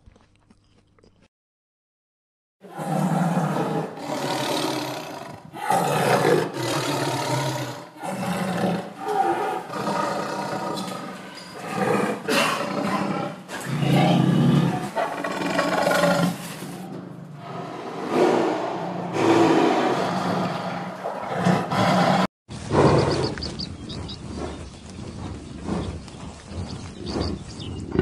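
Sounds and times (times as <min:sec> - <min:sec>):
tiger roaring: 0:02.6 - 0:23.4.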